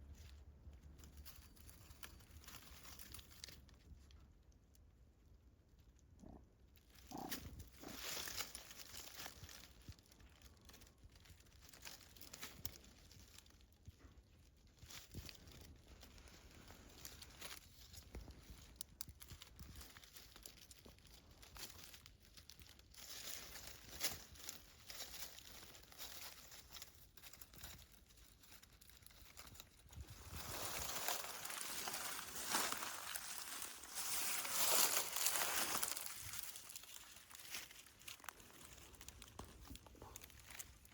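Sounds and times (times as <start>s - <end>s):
rustling and crackling: 0.0s - 40.9s.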